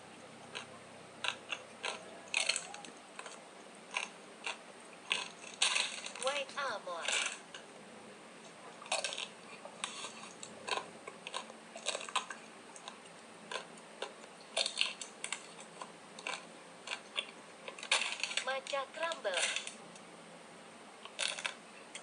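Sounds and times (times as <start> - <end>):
biting and chewing ice cream: 0.1 - 6.4, 7.0 - 7.7, 8.4 - 20.1, 21.0 - 22.0
chocolate shell cracking: 1.3 - 6.3, 7.0 - 7.7, 8.9 - 18.5, 19.1 - 19.8, 21.0 - 22.0.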